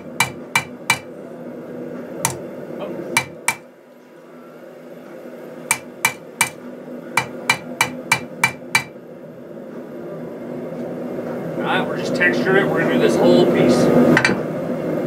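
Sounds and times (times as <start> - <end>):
hammer striking steel: 0.0 - 1.1, 2.2 - 2.4, 3.2 - 3.7, 5.7 - 6.6, 7.2 - 9.0.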